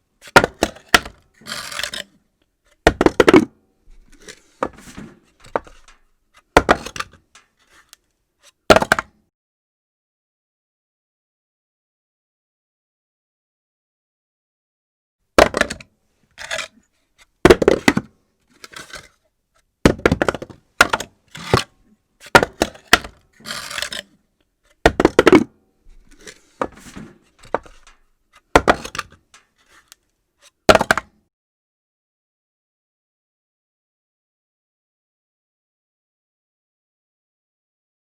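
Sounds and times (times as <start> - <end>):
bounces and rattles: 2.8 - 7.8, 24.8 - 29.9.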